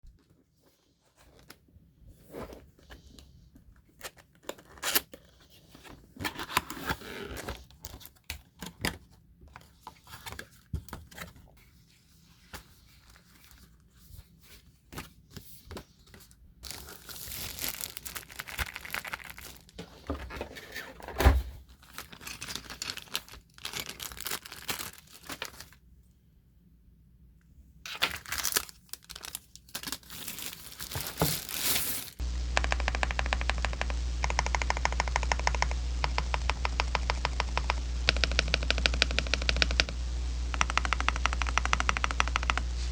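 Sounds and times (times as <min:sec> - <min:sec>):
packaging rustling and tearing: 0:16.6 - 0:19.8, 0:21.8 - 0:25.8, 0:27.9 - 0:32.3.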